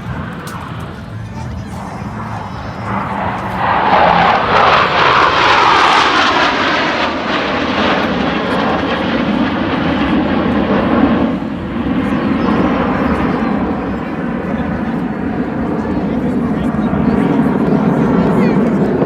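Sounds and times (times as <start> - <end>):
jet flying past: 0.0 - 19.0.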